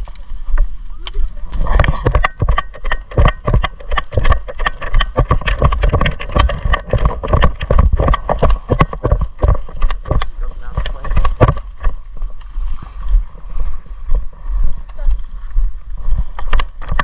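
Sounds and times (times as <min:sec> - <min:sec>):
gear knocking: 0:01.5 - 0:12.0, 0:16.3 - 0:17.0
footsteps walking quickly: 0:01.6 - 0:17.0.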